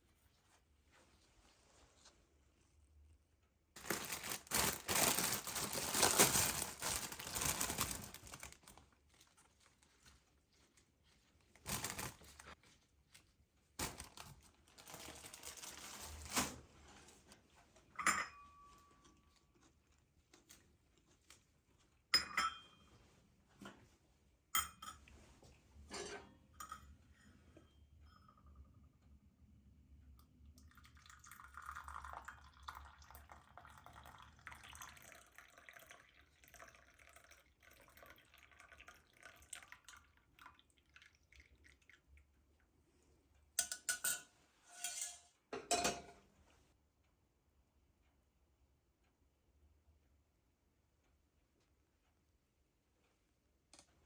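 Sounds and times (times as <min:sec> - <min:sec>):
packaging crinkling and tearing: 0:03.8 - 0:09.5, 0:11.6 - 0:12.5, 0:13.8 - 0:16.6
rustling: 0:03.8 - 0:12.8
dishes clinking: 0:17.9 - 0:19.1, 0:22.2 - 0:22.9, 0:24.6 - 0:25.1, 0:25.9 - 0:28.6, 0:43.6 - 0:46.2.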